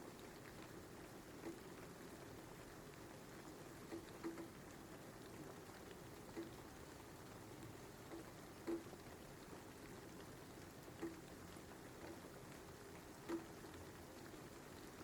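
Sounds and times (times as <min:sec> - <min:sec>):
faint steady rain: 0:00.0 - 0:15.0
single water drips: 0:01.3 - 0:02.0, 0:03.8 - 0:04.7, 0:05.8 - 0:09.2, 0:09.8 - 0:13.9.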